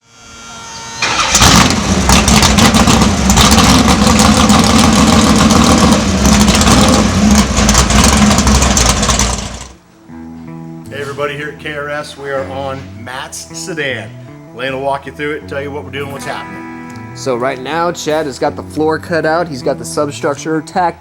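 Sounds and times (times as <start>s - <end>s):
car engine revving with crackling: 1.0s - 9.8s.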